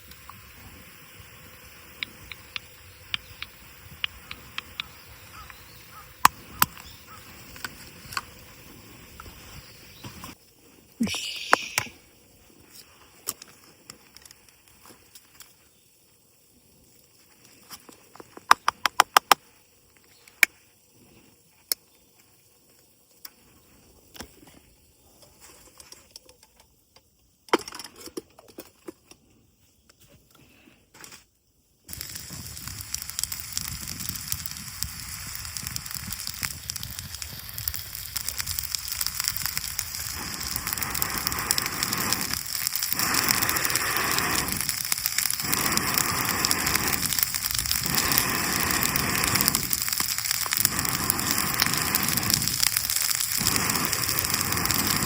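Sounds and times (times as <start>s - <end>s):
food sizzling in pan: 31.9s - 55.0s.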